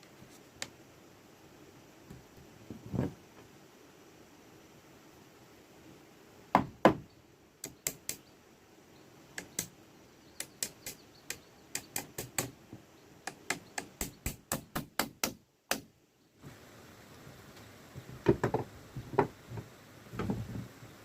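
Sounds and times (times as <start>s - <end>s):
hand tool striking wood: 10.4s - 12.6s, 13.3s - 15.9s.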